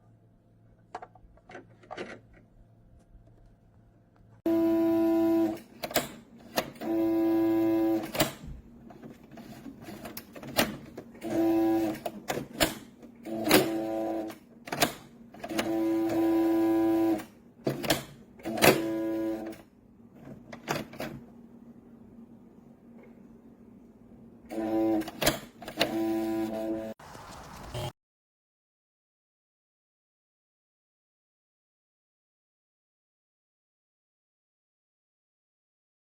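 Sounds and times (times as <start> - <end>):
sewing machine stitching: 9.3 - 19.6, 24.5 - 27.9.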